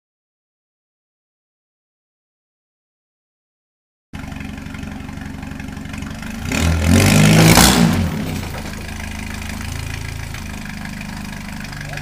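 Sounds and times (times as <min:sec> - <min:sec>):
vehicle engine idling and revving: 0:04.2 - 0:12.0.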